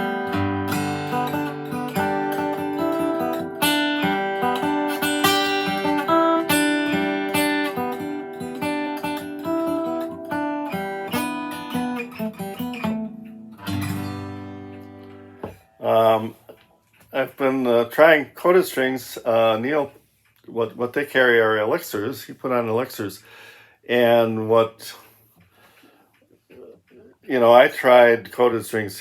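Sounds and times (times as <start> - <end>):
guitar chord ringing: 0.0 - 16.0
acoustic guitar picked notes: 0.0 - 17.8.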